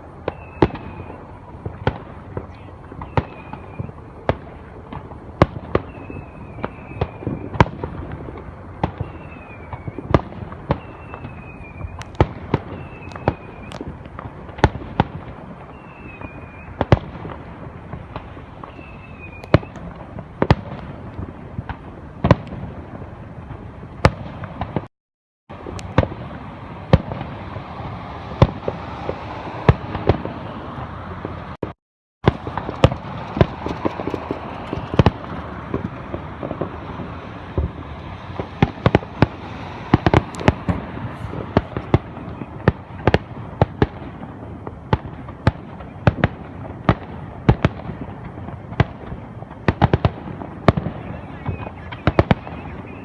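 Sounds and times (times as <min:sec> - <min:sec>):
fireworks bangs and cracks: 0:00.0 - 0:24.9, 0:25.5 - 0:53.0
high falling whistles: 0:00.3 - 0:01.4, 0:05.8 - 0:07.6, 0:09.0 - 0:10.1, 0:10.7 - 0:13.8, 0:15.7 - 0:16.8, 0:18.6 - 0:19.8.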